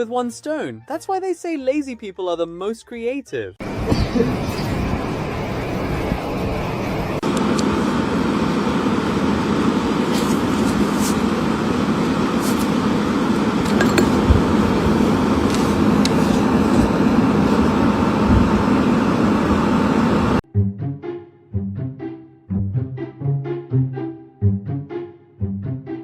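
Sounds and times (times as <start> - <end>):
mechanical rumble with hum: 3.6 - 20.4.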